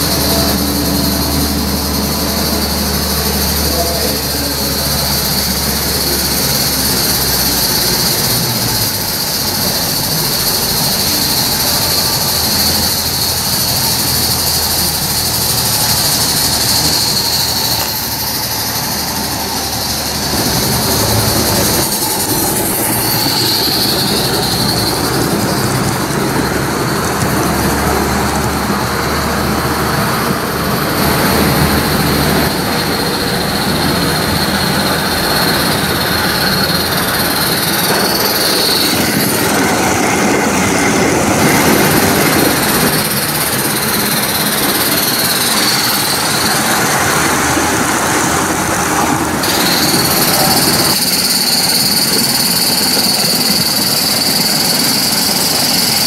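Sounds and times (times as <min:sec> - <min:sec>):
high whine: 0:00.0 - 0:56.0
train rolling on rails: 0:00.0 - 0:56.0.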